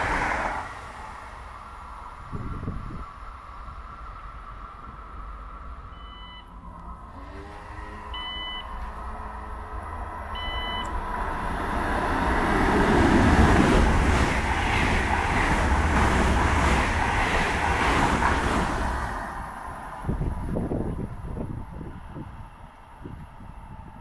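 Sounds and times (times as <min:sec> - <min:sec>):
train passing through station: 0:00.0 - 0:24.0
short electronic beeps: 0:05.9 - 0:06.5, 0:08.1 - 0:08.8, 0:10.4 - 0:11.0.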